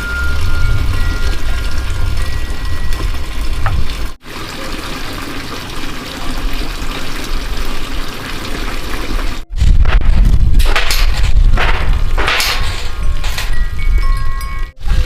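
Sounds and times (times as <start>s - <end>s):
water running: 0.0s - 9.5s.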